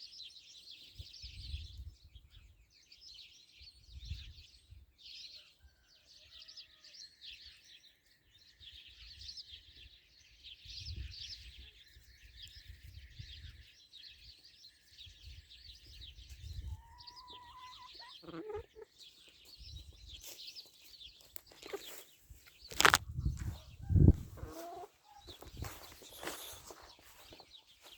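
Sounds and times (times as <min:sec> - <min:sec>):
birds chirping chorus: 0:00.0 - 0:27.9
fowl calls: 0:16.8 - 0:18.9, 0:24.1 - 0:25.4.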